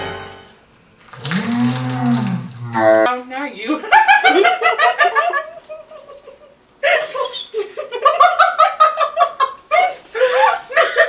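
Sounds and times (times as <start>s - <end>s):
women laughing: 3.8s - 11.0s.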